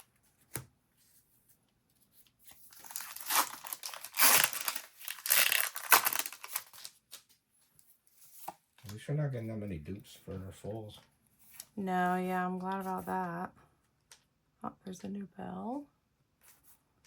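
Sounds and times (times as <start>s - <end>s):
wrapper tearing and crinkling: 2.7s - 7.1s.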